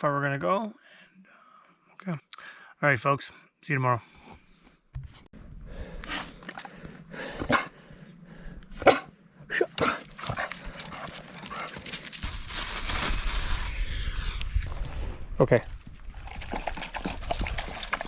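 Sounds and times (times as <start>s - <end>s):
wind on microphone: 12.2s - 18.0s.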